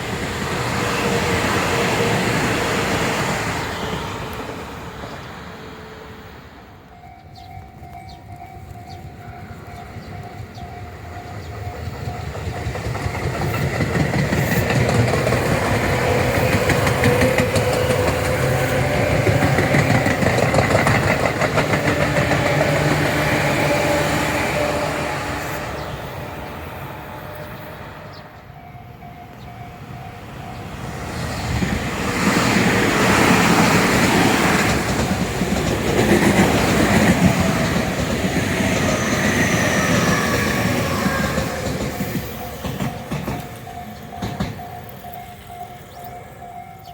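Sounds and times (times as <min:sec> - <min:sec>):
electric trains passing: 0:00.0 - 0:46.9
wheels clattering over rail joints: 0:11.4 - 0:24.0, 0:31.5 - 0:46.9.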